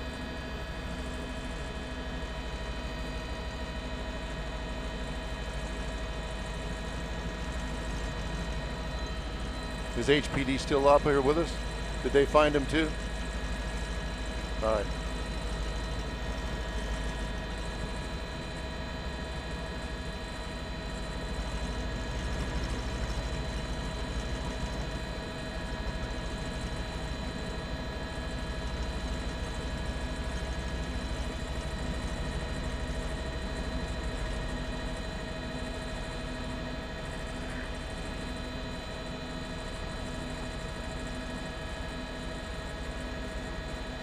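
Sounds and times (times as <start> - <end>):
helicopter rumble: 0.0 - 44.0
helicopter whining tones: 8.9 - 15.8.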